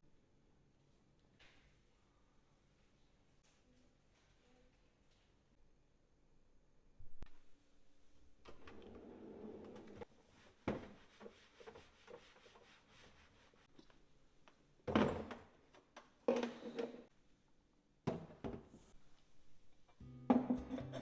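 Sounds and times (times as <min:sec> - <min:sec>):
objects knocking and thunking: 0:14.8 - 0:17.1, 0:18.0 - 0:18.8, 0:19.9 - 0:21.0.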